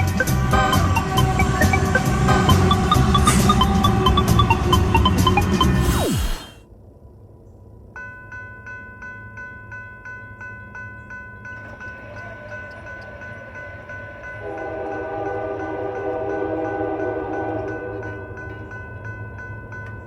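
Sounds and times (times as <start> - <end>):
locomotive horn: 0.0 - 5.8, 11.8 - 18.6
railroad crossing bell ringing: 0.0 - 5.8, 7.9 - 20.0.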